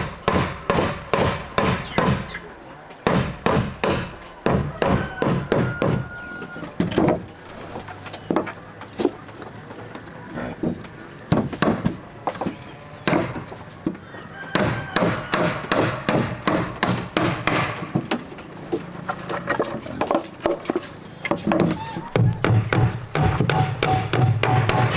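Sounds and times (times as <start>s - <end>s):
tool striking wood: 0.0s - 2.4s, 3.0s - 6.1s, 10.6s - 12.0s, 13.0s - 13.5s, 14.5s - 18.2s, 21.3s - 24.9s.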